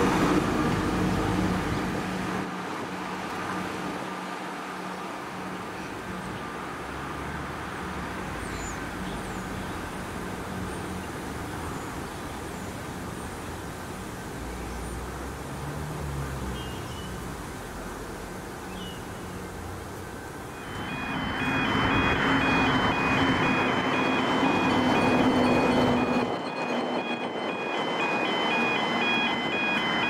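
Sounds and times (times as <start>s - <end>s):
electric train rumble: 0.0s - 2.7s, 20.1s - 30.0s
high ringing tone pulsing: 20.5s - 30.0s.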